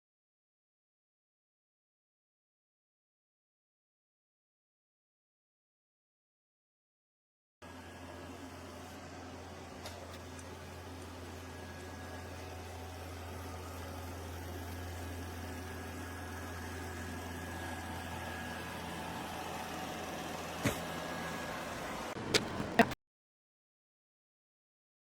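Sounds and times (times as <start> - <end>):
robot vacuum motor humming: 7.7 - 22.9.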